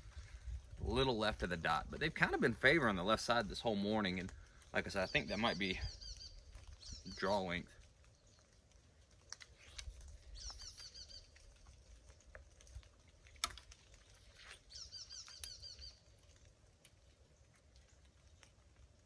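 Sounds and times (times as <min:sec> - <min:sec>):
small bird chirping: 0:05.0 - 0:08.5, 0:09.5 - 0:11.5, 0:14.1 - 0:16.2.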